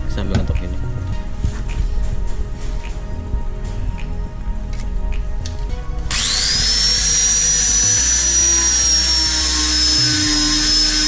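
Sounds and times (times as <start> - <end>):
grinder whining: 6.1 - 11.0.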